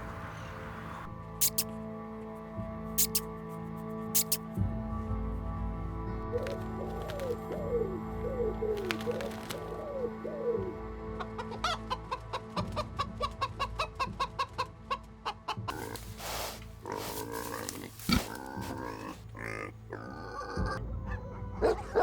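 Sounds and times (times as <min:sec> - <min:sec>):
chicken clucking: 0:01.4 - 0:01.6, 0:03.0 - 0:03.2, 0:04.2 - 0:04.4
low cooing calls: 0:06.3 - 0:10.9.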